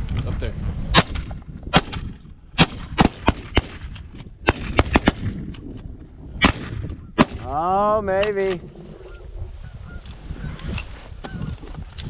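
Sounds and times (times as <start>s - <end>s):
shotgun blasts: 0.9s - 5.5s, 6.4s - 7.6s.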